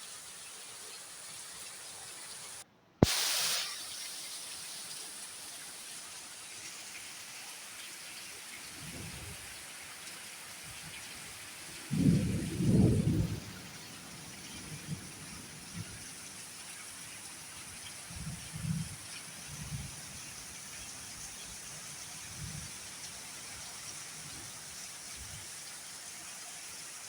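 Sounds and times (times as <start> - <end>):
heavy rain: 6.1 - 26.4
thunder crack with hiss: 11.7 - 16.5
thunder rumbling: 11.8 - 16.0.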